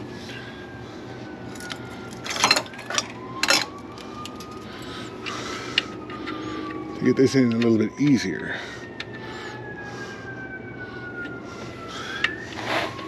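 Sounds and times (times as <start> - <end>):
faint distant siren: 0.0 - 13.0
metal tools clanking: 1.6 - 4.6.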